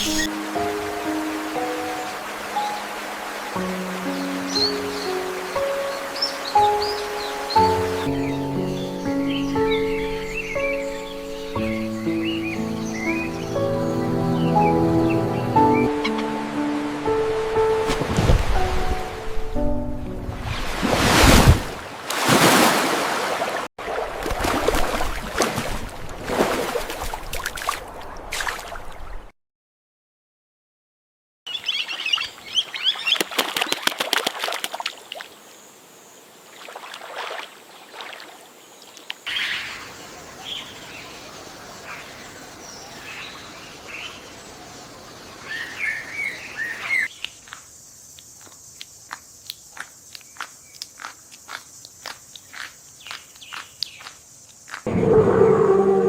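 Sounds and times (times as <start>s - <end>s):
water splashing and trickling: 0.0s - 8.4s, 15.7s - 19.5s, 20.4s - 29.2s, 31.9s - 35.5s, 36.4s - 43.9s
birds chirping and calling: 4.1s - 16.5s.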